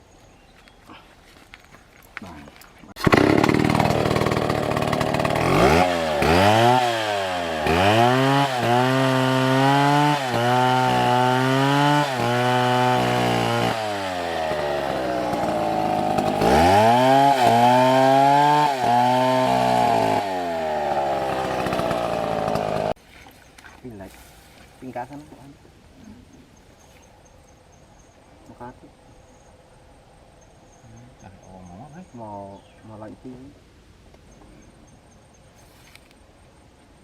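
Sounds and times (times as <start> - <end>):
chainsaw cutting wood: 3.0 - 23.0.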